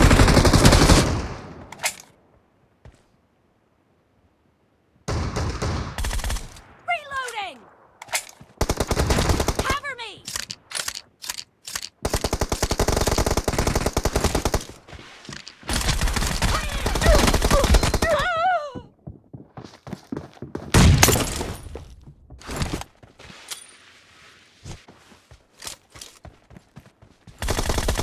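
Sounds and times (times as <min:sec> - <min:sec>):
video game automatic gunfire: 0:27.4 - 0:28.0.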